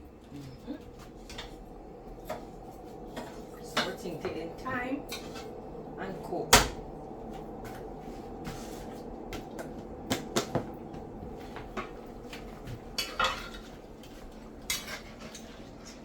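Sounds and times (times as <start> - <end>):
steady low hum: 0.0 - 16.0
utensil clinking against a pot: 11.8 - 16.0.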